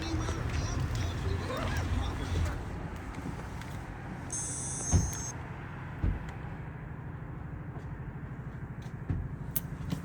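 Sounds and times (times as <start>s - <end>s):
high-pitched electronic tone: 4.3s - 5.3s.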